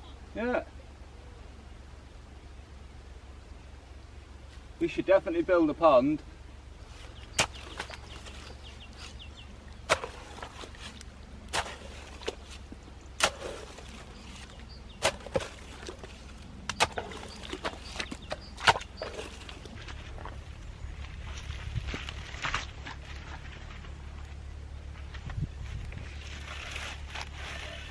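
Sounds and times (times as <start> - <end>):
hand tool striking earth and stones: 6.9 - 20.4.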